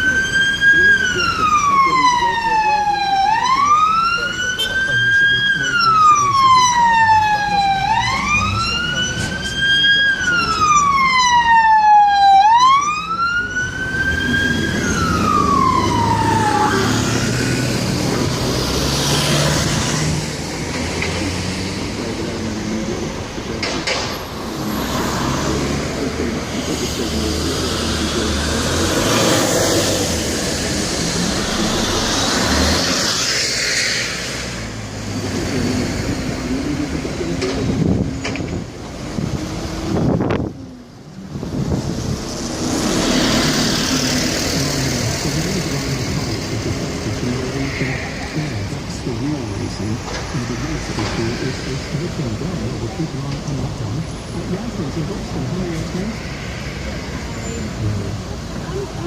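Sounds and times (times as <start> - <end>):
emergency siren wailing: 0.0 - 57.8
road traffic noise: 0.0 - 59.0.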